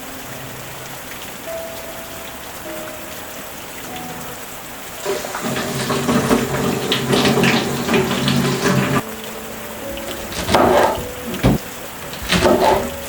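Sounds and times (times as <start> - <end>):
busy water noise: 0.0 - 13.0
soft background music: 0.0 - 13.0
steady rain: 0.0 - 13.0.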